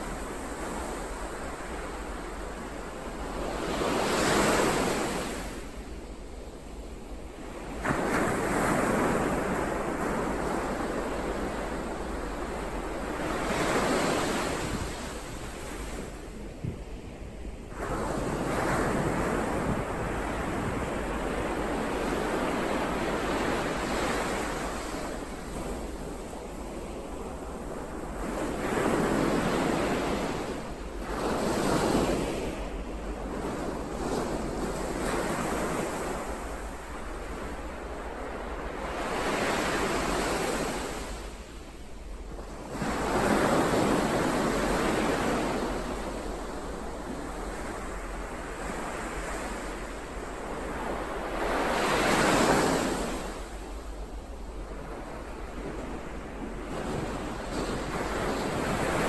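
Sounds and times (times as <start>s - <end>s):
ocean waves breaking: 17.7s - 59.0s.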